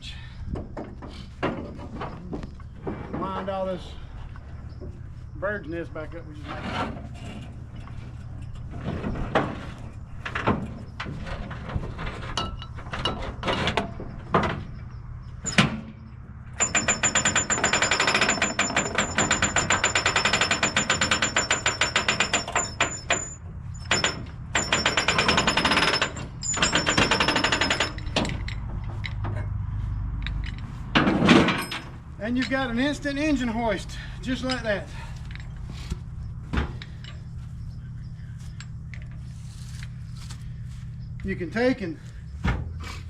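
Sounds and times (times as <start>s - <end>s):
metal clanks: 6.5s - 29.6s, 30.2s - 33.0s, 34.2s - 37.7s.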